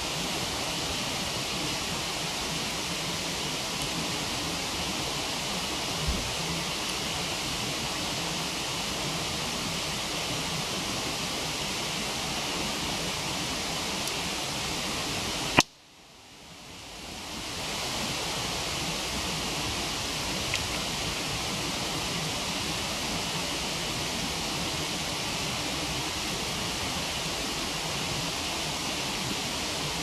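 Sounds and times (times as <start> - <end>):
waterfall rushing: 0.0 - 15.6, 16.8 - 30.0
fire pop: 15.5 - 15.8.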